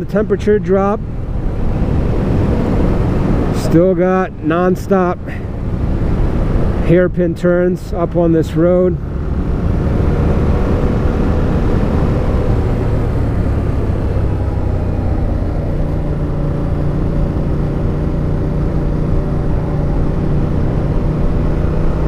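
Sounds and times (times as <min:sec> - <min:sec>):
wind rushing over microphone: 0:00.0 - 0:22.0
motorcycle engine running: 0:09.0 - 0:22.0.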